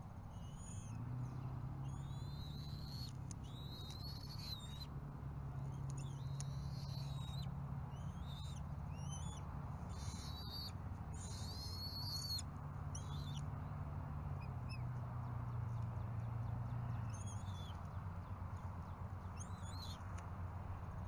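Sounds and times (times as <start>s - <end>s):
birds whistled calls: 0.3s - 4.9s, 5.6s - 13.5s, 16.4s - 17.8s, 19.2s - 20.1s.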